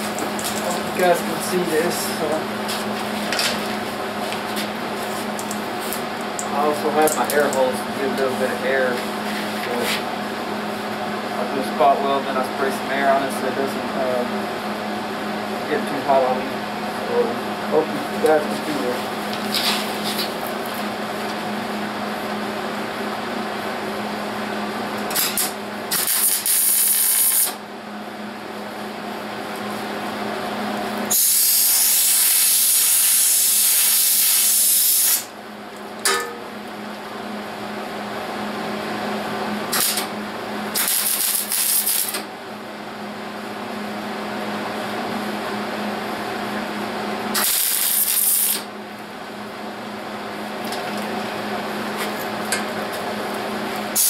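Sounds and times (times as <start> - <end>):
steady hum: 0.0 - 54.0
spot welding bursts: 25.1 - 27.6, 31.1 - 35.3, 39.7 - 40.1, 40.7 - 42.2, 47.3 - 48.7.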